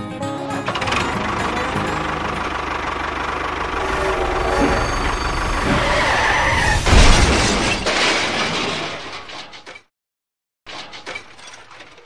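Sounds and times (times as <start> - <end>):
vehicle engine running: 0.5 - 6.2
loud crash: 3.7 - 9.5.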